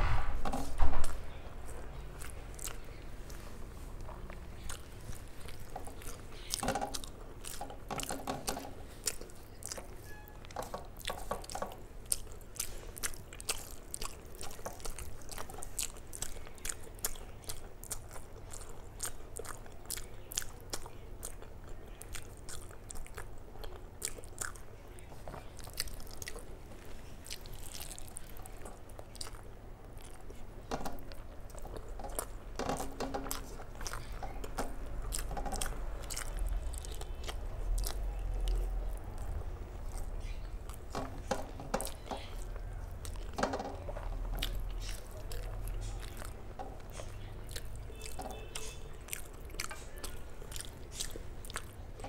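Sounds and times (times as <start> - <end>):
person chewing and eating: 0.4 - 52.0
mouth clicks and smacks: 0.6 - 52.0.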